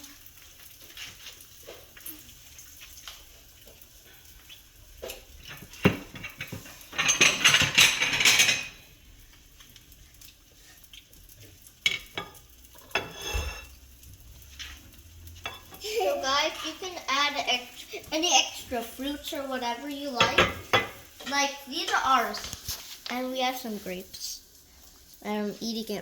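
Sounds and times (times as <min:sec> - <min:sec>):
utensils clinking against dishes: 0:05.4 - 0:08.9, 0:11.8 - 0:13.8, 0:20.2 - 0:22.5.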